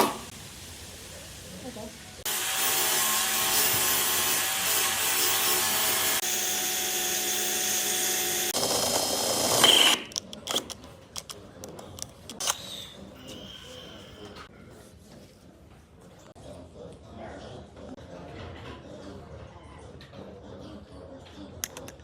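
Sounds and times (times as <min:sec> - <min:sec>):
power tool whining on wood: 0:02.3 - 0:10.0.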